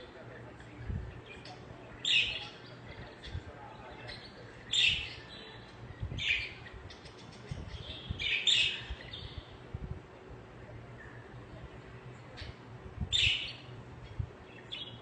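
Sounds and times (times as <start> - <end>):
budgerigars chirping: 13.2 - 13.7.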